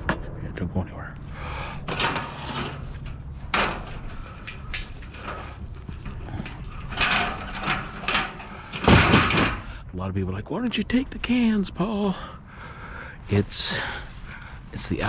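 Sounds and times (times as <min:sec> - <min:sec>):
steady low hum: 0:00.0 - 0:15.0
loose objects rattling: 0:01.2 - 0:09.9, 0:12.4 - 0:15.0.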